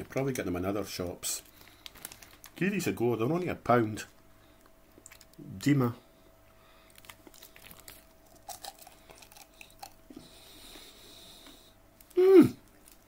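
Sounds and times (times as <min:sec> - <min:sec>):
plastic packet crinkling: 0:01.3 - 0:03.4, 0:06.9 - 0:10.0, 0:12.0 - 0:13.0
chewing and crunching: 0:04.6 - 0:05.4, 0:06.8 - 0:10.8.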